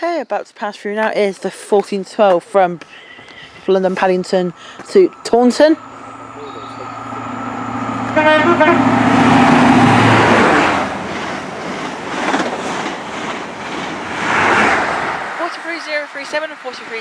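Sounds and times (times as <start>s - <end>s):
diesel train engine drone: 2.5s - 17.0s
rush of train wheels: 3.1s - 17.0s
train horn toot: 5.7s - 10.8s.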